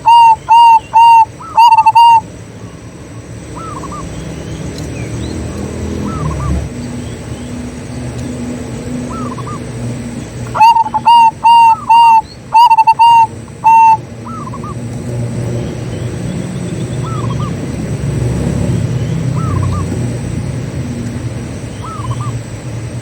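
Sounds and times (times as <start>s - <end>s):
dove cooing: 0.0s - 2.3s, 10.5s - 14.9s, 19.3s - 20.0s
low rural background hum: 0.0s - 23.0s.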